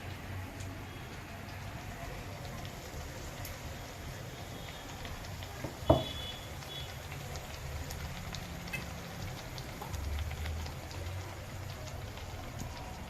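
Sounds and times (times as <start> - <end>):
oil crackling and popping: 0.0 - 13.0
sharp knock: 5.9 - 6.2.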